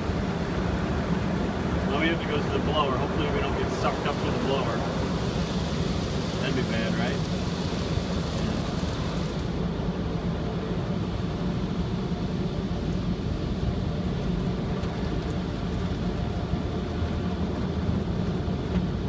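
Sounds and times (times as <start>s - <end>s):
drying blowers rushing air: 0.0s - 14.6s.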